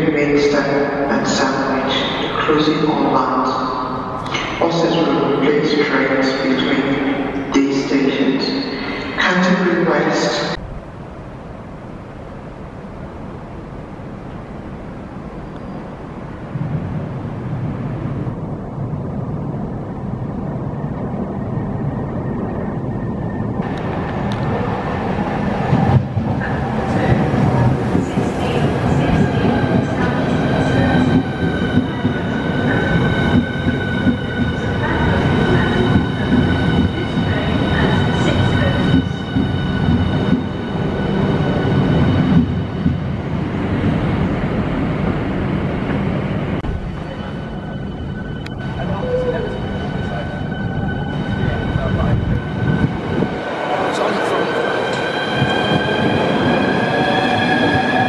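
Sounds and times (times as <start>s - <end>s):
train wheels rumbling on rail: 22.5s - 58.0s.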